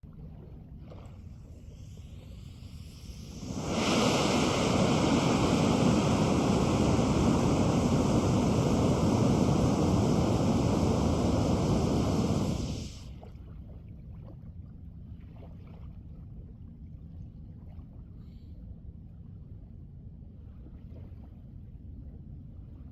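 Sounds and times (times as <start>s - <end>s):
rocket propellant burning roar: 1.8s - 13.1s.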